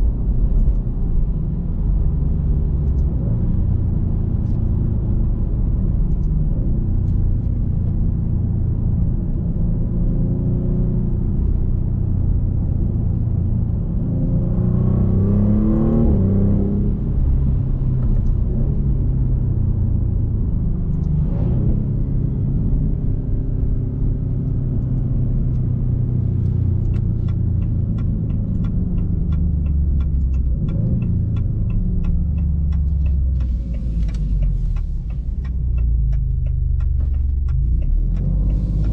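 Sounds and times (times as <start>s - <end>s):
car engine rumbling while driving: 0.0s - 38.9s
regular ticking: 26.9s - 38.9s.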